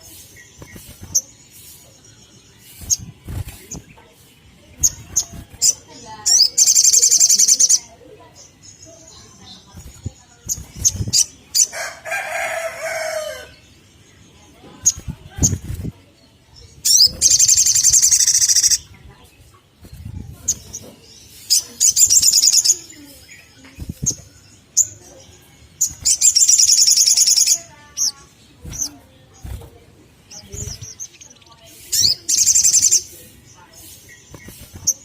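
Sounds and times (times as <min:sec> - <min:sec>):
bird trilling high-pitched: 0:04.8 - 0:07.9, 0:16.8 - 0:18.9, 0:21.4 - 0:23.0, 0:25.8 - 0:29.0.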